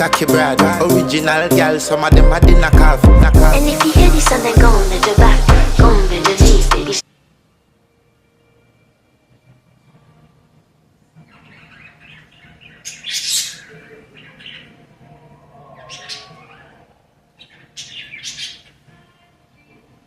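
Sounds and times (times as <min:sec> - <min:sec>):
parakeets chattering: 0:11.3 - 0:14.9, 0:15.7 - 0:18.8.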